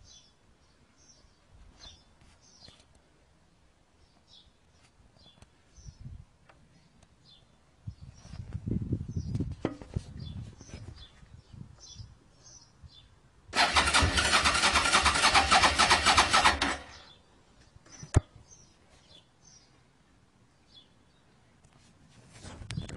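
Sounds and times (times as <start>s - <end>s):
motorcycle engine cranking: 13.6s - 17.1s.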